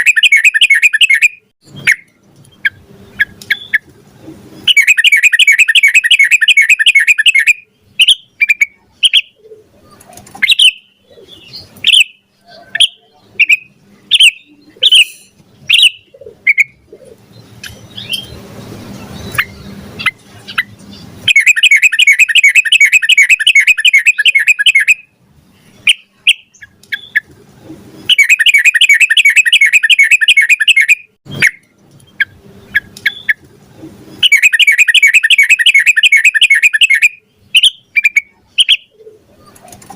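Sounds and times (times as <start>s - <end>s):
bird singing rolling trills: 0.0s - 27.3s, 27.9s - 33.4s, 34.0s - 39.6s
bird single chirps: 10.4s - 25.0s, 28.0s - 33.4s.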